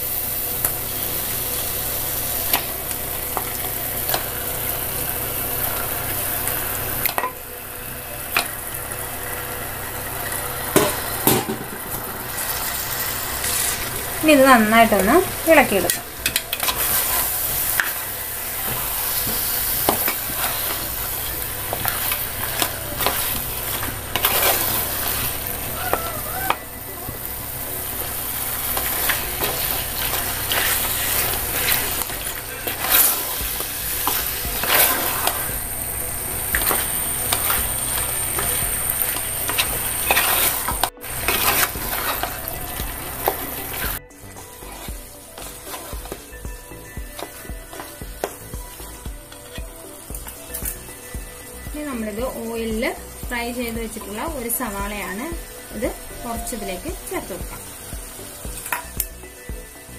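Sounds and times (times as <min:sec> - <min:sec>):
chicken sizzling in a pot: 0:00.0 - 0:59.9
spatula scraping a metal pot: 0:21.8 - 0:25.4, 0:38.3 - 0:42.6.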